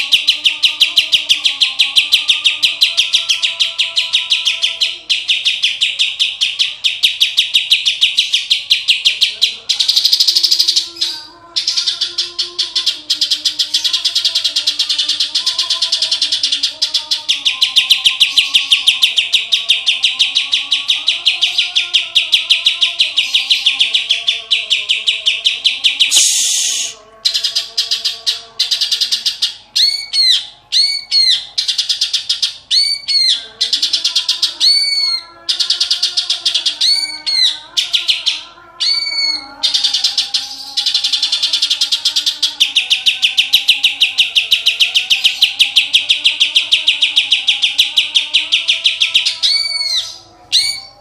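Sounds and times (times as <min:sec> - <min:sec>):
bird buzzy trill: 0:20.3 - 0:31.1
bird whistled notes: 0:26.0 - 0:27.0.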